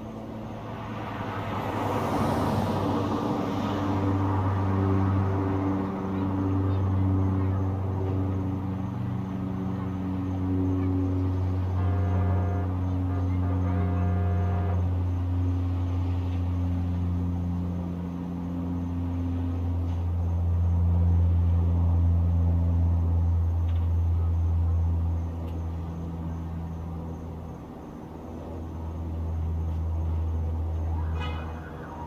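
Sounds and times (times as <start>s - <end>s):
distant traffic rumble: 0.0s - 32.0s
faint engine hum: 0.0s - 32.0s
siren rising: 30.2s - 32.0s.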